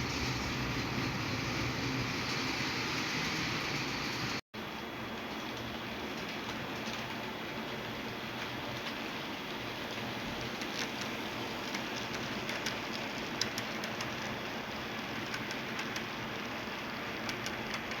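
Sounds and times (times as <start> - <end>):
model train rolling hiss: 0.0 - 4.4
sharp clicks of model train: 10.4 - 14.4, 15.0 - 18.0.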